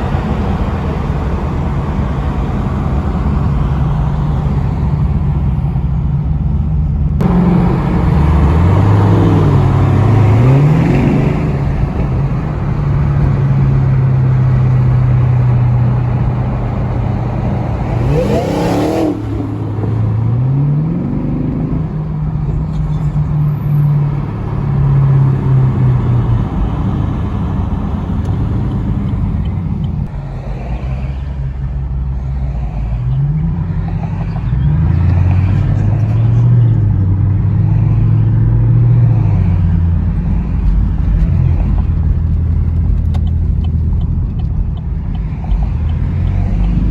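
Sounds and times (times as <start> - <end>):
car engine revving: 0.0 - 46.9.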